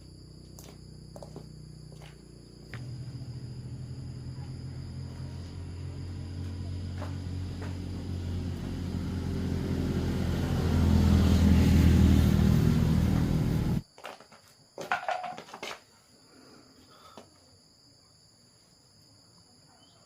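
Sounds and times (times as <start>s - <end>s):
vehicle engine running: 0.0s - 13.8s.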